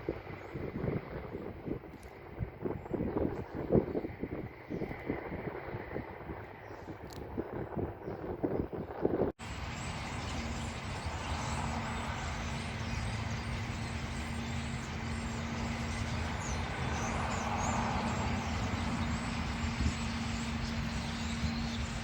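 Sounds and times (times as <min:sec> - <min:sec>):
low engine hum: 0:00.0 - 0:22.0
road traffic rumble: 0:09.4 - 0:22.0.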